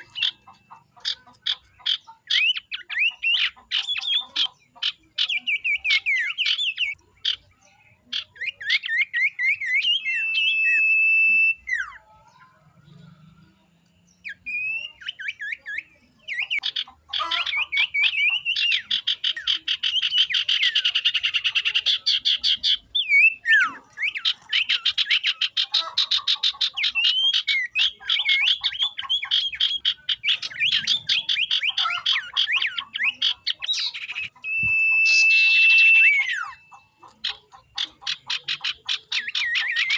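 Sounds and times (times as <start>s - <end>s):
birds chattering and trilling: 0.0s - 39.9s
bird whistle: 8.1s - 12.1s, 14.3s - 37.4s.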